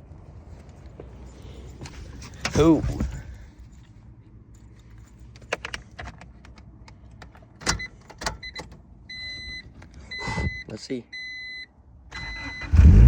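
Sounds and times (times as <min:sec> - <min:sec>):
car keys jangling: 0:01.2 - 0:08.8.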